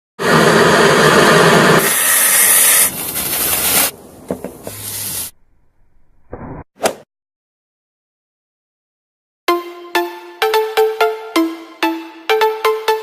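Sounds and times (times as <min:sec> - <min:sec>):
loud hissing: 0:04.6 - 0:05.3.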